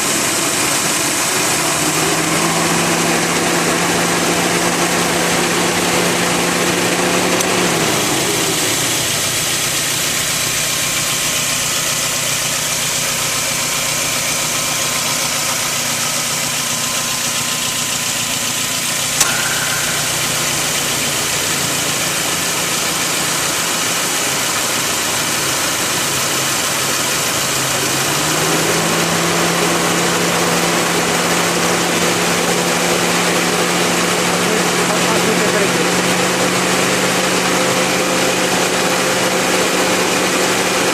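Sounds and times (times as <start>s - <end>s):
car engine idling: 0.0s - 40.9s
sharp click: 19.2s - 22.4s.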